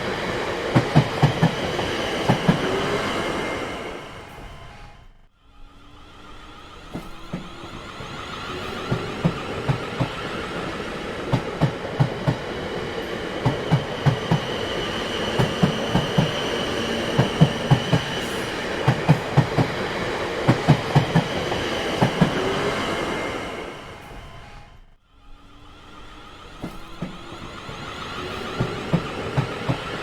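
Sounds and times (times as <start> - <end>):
train rumble: 0.0 - 30.0
train wheels clattering over rail joints: 6.8 - 22.6.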